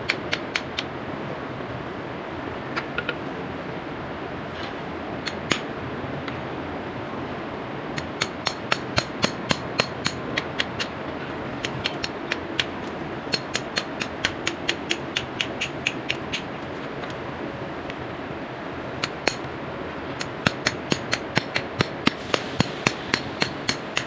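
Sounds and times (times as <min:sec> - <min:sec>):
hammer striking steel chisel: 0:08.0 - 0:10.9, 0:19.0 - 0:19.5, 0:20.2 - 0:24.0.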